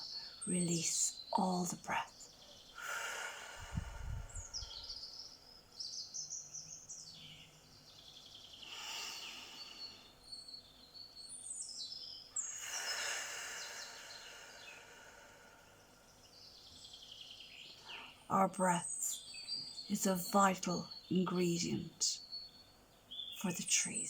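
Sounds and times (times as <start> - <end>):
steady outdoor hiss: 0.0 - 24.0
birds chirping and whistling: 3.5 - 15.0.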